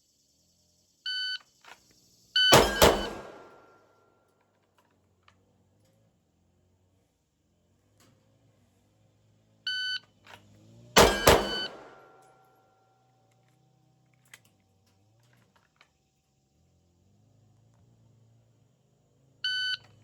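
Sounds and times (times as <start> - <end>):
shot timer beep: 2.4 - 3.7, 11.0 - 12.2, 19.5 - 19.8
pistol shots: 2.5 - 3.7, 11.0 - 12.2
ringing tone: 11.0 - 12.1.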